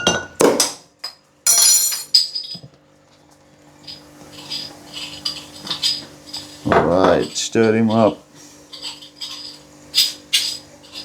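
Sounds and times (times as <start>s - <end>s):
glass and bowl clinking: 1.5s - 2.5s
utensil clinking against bowl: 1.5s - 2.5s.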